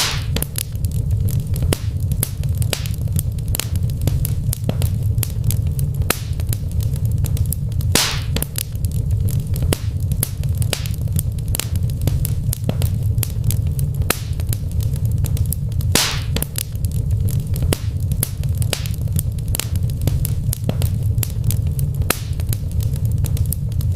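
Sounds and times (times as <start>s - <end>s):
wood fire crackling and popping: 0.0s - 23.9s.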